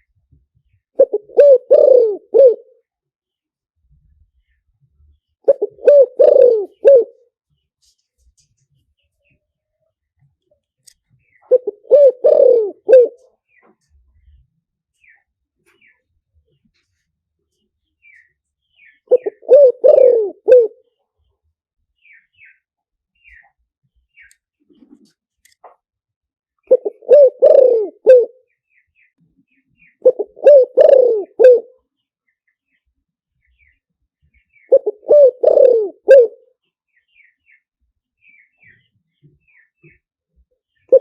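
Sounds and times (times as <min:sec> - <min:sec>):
dove cooing: 0:01.0 - 0:02.8, 0:05.4 - 0:07.2, 0:11.5 - 0:13.3, 0:19.1 - 0:20.9, 0:26.7 - 0:28.4, 0:29.9 - 0:31.8, 0:34.6 - 0:36.4
faint high bird chirps: 0:10.7 - 0:16.8, 0:17.6 - 0:25.6, 0:28.3 - 0:35.6, 0:36.4 - 0:41.0.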